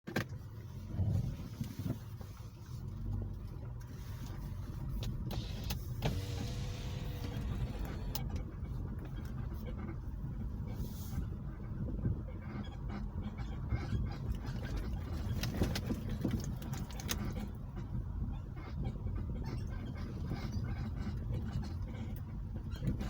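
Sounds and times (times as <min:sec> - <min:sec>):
car engine rumbling: 0:00.1 - 0:23.0
sharp engine clicks: 0:03.3 - 0:10.2, 0:12.6 - 0:18.1.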